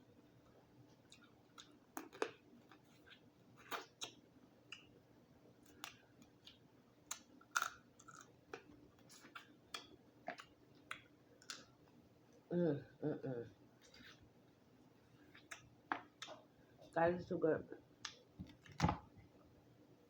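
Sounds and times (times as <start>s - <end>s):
person chewing crab: 5.7s - 11.7s.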